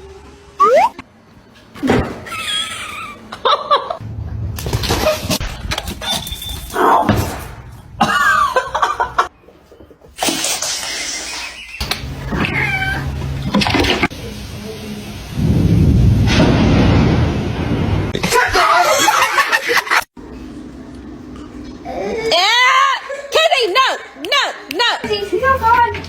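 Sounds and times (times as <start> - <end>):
cats meowing: 12.3 - 13.2.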